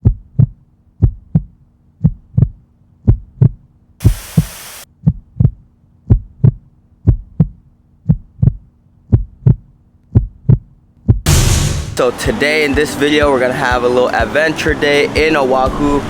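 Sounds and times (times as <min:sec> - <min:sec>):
heartbeat double thumps: 0:00.0 - 0:11.7
steady low hum: 0:00.0 - 0:12.0
burst of hiss: 0:04.0 - 0:04.9.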